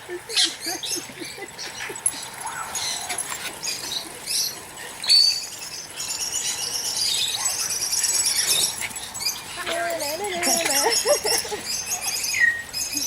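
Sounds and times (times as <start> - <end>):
dogs scuffling: 1.6 - 4.3, 7.7 - 12.3
dogs squeaking: 7.0 - 13.0.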